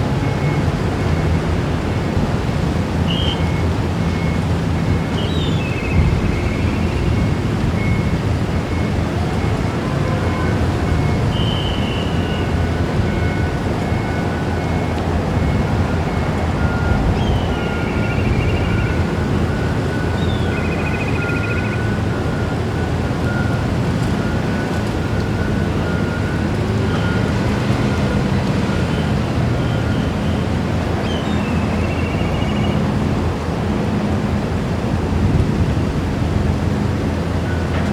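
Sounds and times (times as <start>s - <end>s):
ship diesel engines rumbling: 0.0s - 37.9s
wind on microphone: 32.8s - 37.2s.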